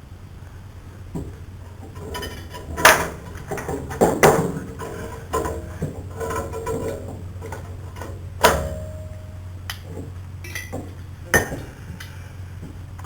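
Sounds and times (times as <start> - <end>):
steady low hum: 0.0 - 13.0
metal clinks of tools and parts: 10.4 - 11.6.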